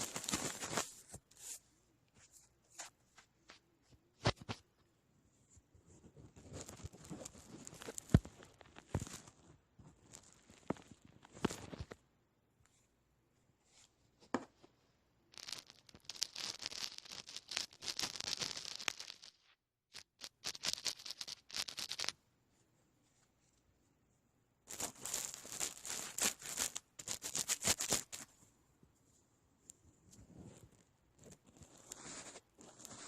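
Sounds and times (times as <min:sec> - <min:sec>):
scratchy crackling rustle: 0:05.9 - 0:12.0, 0:15.4 - 0:22.1, 0:24.7 - 0:28.3, 0:30.2 - 0:33.0.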